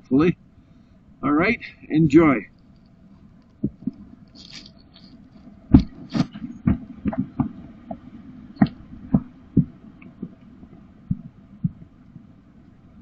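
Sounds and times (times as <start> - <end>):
dull low thumps and knocks: 2.6 - 4.2, 5.3 - 12.0.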